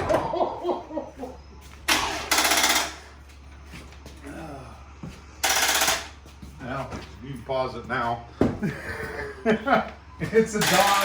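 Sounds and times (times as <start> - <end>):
starter motor cranking: 1.9 - 3.0
people talking: 10.2 - 11.0.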